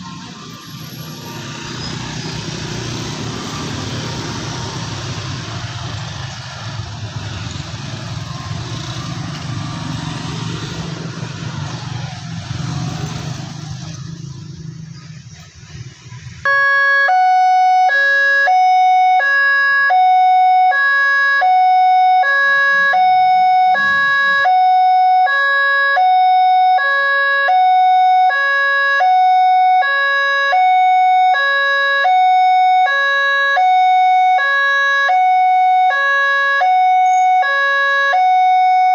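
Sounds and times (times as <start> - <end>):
road traffic: 0.0 - 38.9
level crossing warning alarm: 16.4 - 38.9.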